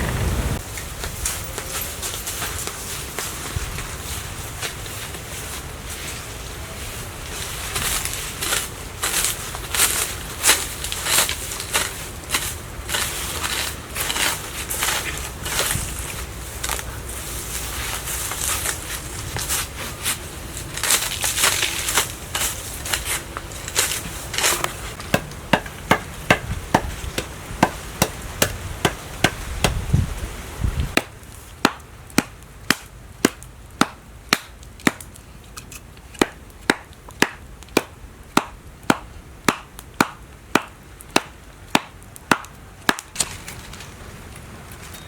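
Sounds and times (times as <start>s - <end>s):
low rumble: 0.0s - 0.8s
knife chopping on cutting board: 25.1s - 29.8s.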